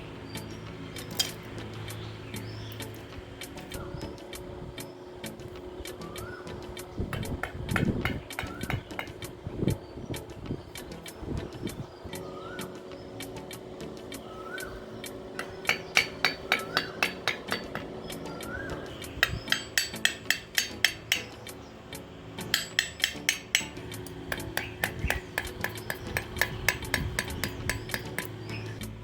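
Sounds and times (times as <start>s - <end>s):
rapid light hammer taps: 5.3s - 12.2s, 15.0s - 28.5s.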